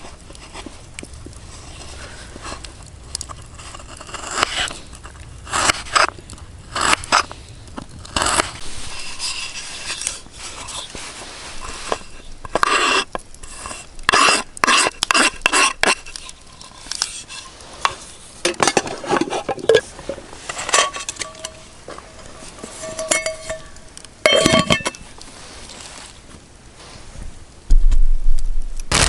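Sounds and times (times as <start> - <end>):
metal cookware clattering: 18.5 - 25.0.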